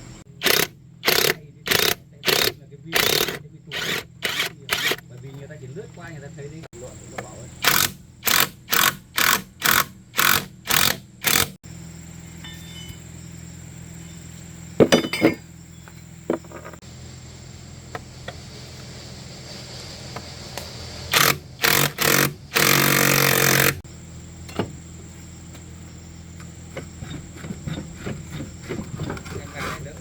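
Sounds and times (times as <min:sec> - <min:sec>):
metal clinks and knocks: 0:12.4 - 0:13.2, 0:14.8 - 0:15.5.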